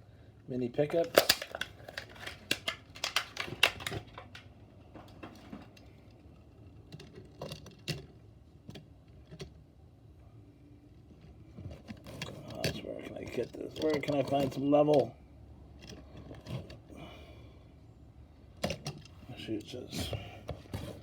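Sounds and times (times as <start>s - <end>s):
clicks and taps handling toy truck: 0.9s - 9.6s, 11.0s - 15.1s, 15.8s - 16.9s.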